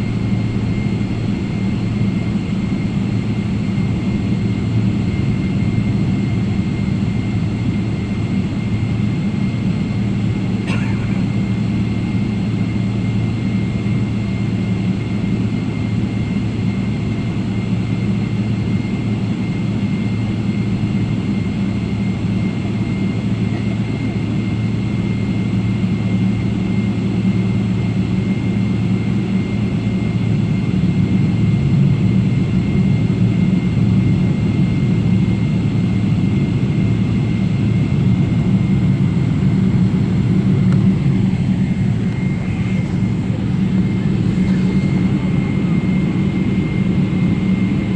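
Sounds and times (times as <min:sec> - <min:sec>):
jet engine drone: 0:00.0 - 0:47.9
high steady whine: 0:38.4 - 0:47.9.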